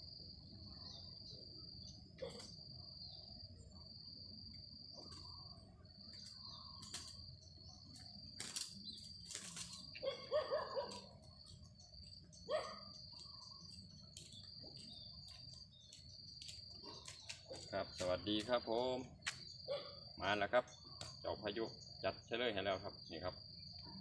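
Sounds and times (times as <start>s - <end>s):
high insect trill: 0.0s - 24.0s
dove cooing: 2.2s - 2.6s, 9.3s - 11.0s
dove wings flapping: 6.8s - 7.2s, 8.4s - 9.9s.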